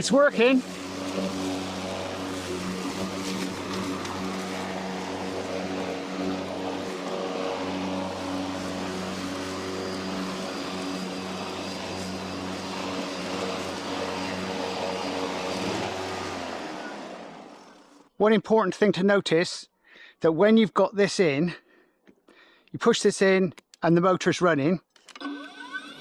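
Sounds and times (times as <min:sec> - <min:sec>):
battery lawnmower running: 0:00.0 - 0:18.2, 0:25.1 - 0:26.0.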